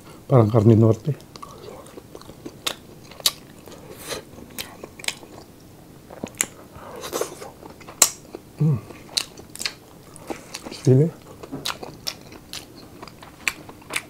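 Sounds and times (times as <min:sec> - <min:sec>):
chewing crispy food: 0:00.4 - 0:14.0
person humming: 0:08.6 - 0:09.0.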